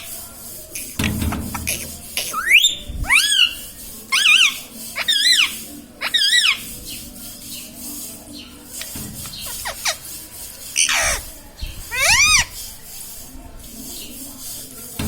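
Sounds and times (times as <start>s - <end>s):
parrot screeching and whistling: 2.3s - 6.7s, 9.4s - 10.0s, 10.8s - 11.2s, 11.9s - 12.5s.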